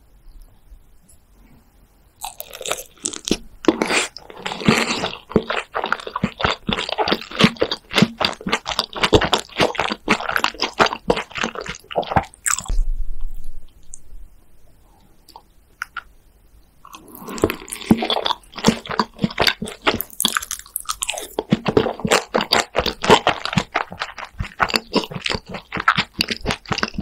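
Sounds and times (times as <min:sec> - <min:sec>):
crisp crunchy chewing: 0:02.2 - 0:12.8, 0:16.9 - 0:27.0.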